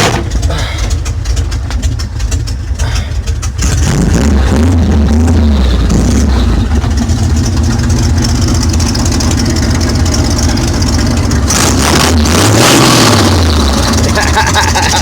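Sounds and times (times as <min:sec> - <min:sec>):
truck engine running through loud exhaust: 0:00.0 - 0:15.0.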